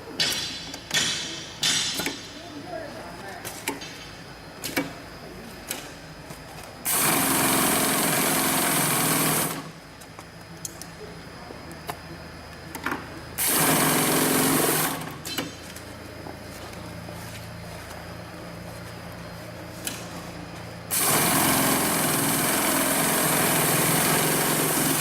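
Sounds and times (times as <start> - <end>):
industrial sewing machine stitching: 6.9 - 9.7, 13.4 - 15.1, 20.9 - 25.0.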